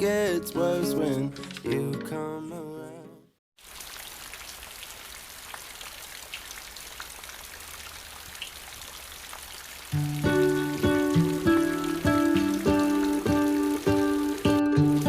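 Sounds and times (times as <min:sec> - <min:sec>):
rain falling: 0:03.6 - 0:15.0.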